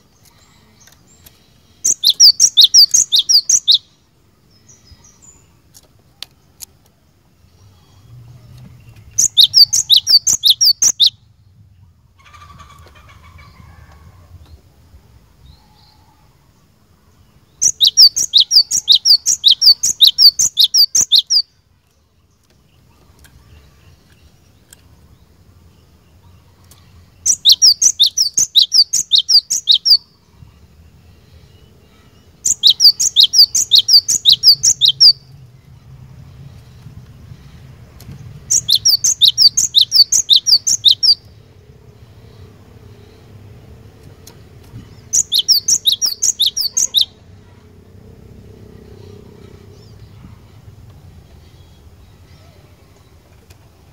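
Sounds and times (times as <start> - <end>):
bird singing sharp high notes: 1.8 - 3.9, 9.2 - 11.2, 17.6 - 21.5, 27.3 - 30.1, 31.9 - 35.4, 38.5 - 41.3, 45.0 - 47.2.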